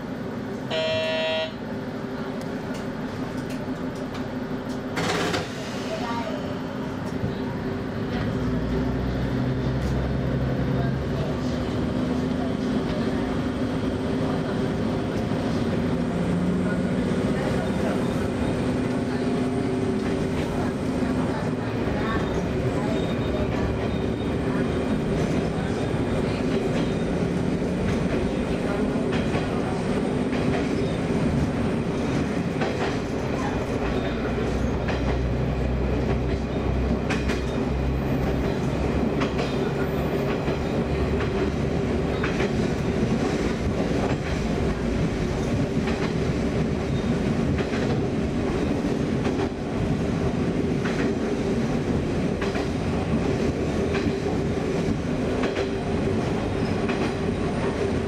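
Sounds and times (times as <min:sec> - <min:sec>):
diesel railcar engine drone: 0:00.0 - 0:58.0.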